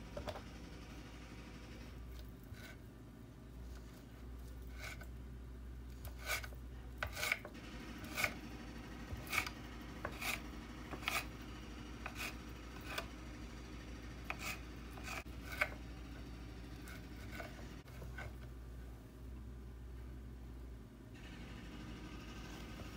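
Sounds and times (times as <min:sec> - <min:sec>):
steady low hum: 0:00.0 - 0:22.9
short scraping strokes: 0:03.8 - 0:05.1, 0:09.1 - 0:11.4.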